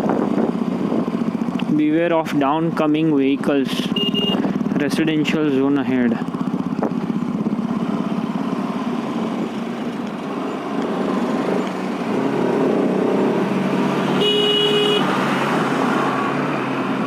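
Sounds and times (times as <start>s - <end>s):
motorcycle engine running: 0.0s - 17.0s
road and wind noise: 0.0s - 17.0s
vehicle horn: 3.8s - 4.5s, 14.1s - 15.1s.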